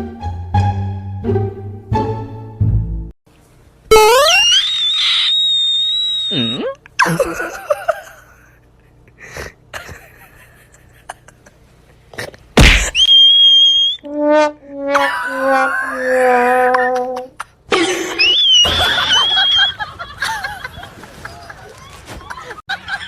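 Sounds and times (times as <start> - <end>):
high whistle tone: 3.9 - 6.7, 13.0 - 14.2, 18.2 - 19.8
slide whistle glide: 3.9 - 6.7, 13.0 - 14.3, 18.2 - 19.8.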